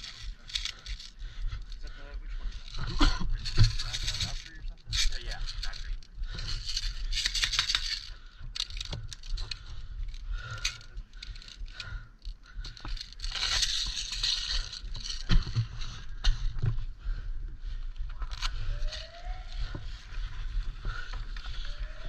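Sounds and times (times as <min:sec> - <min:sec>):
gear clicking and rattling: 0:00.0 - 0:22.0
rustling and scraping of movement: 0:00.0 - 0:22.0
low wind rumble on microphone: 0:14.8 - 0:22.0.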